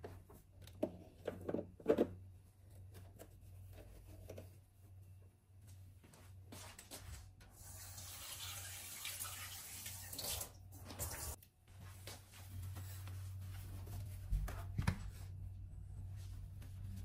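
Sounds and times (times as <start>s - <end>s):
tap water running into sink: 7.6s - 11.4s.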